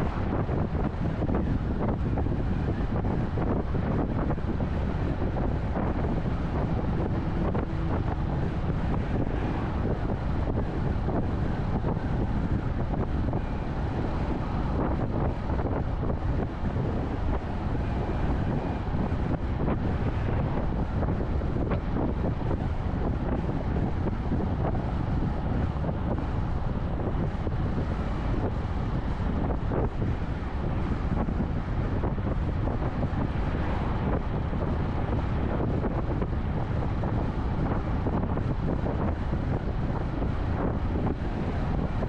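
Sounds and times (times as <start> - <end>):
car road noise rumble: 0.0 - 42.0
wind buffeting microphone: 0.0 - 42.0.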